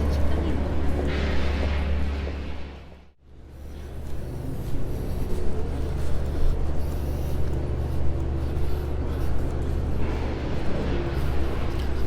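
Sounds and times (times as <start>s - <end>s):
street noise: 0.0s - 12.0s
vehicle engine rumbling: 0.0s - 12.0s.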